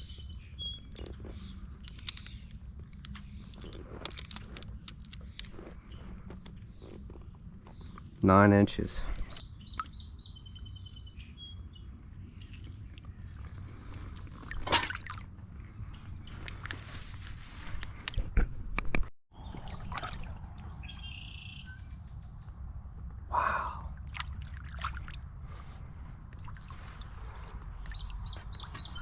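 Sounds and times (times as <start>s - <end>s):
splashes in water: 14.4s - 15.2s, 19.4s - 20.6s, 24.1s - 25.3s, 26.4s - 28.2s.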